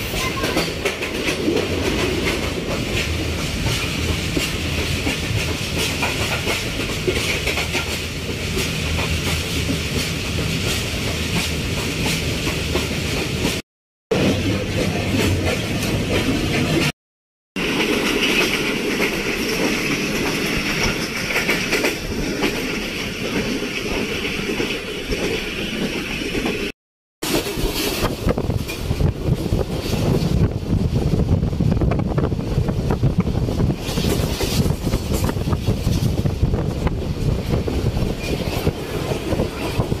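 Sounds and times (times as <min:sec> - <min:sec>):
train rumble and wheel clatter: 0:00.0 - 0:17.0, 0:17.6 - 0:40.0.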